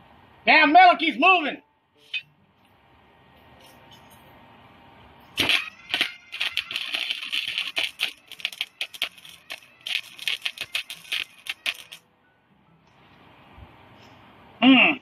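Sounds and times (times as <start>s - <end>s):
electric arc welder crackling: 5.4s - 12.0s.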